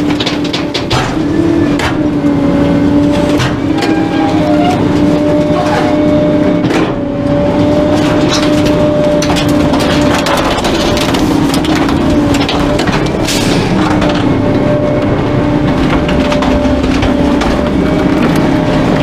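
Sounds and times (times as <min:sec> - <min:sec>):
compactor cracking and snapping: 0:00.0 - 0:02.0, 0:07.6 - 0:19.0
garbage truck hydraulic whine: 0:01.0 - 0:19.0.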